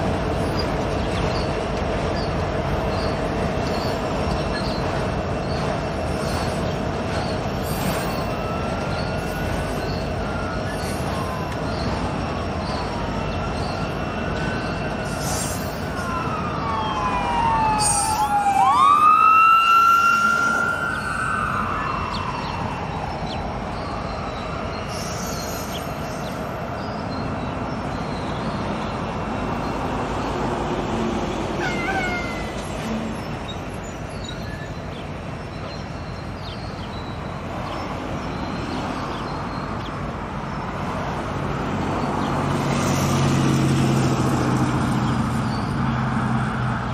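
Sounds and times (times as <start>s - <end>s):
train wheels rumbling on rail: 0.0s - 17.8s, 20.3s - 46.9s
wheels squealing: 31.6s - 35.0s.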